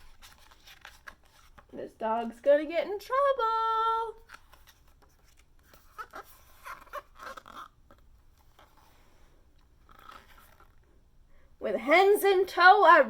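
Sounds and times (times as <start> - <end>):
book pages rustling: 0.0 - 2.4, 3.7 - 10.9.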